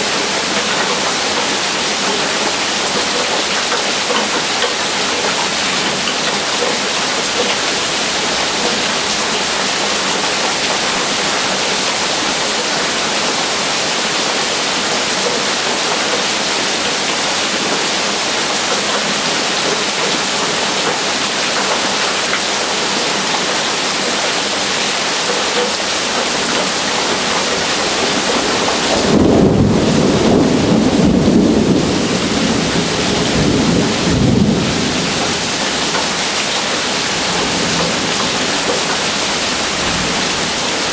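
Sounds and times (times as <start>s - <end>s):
heavy rain: 0.0s - 40.9s
rolling thunder rumble: 28.1s - 36.0s.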